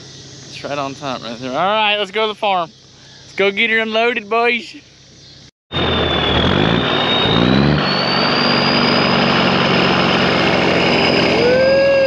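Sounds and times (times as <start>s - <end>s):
diesel truck engine pulling away: 5.7s - 12.0s
thin high whine: 5.7s - 12.0s.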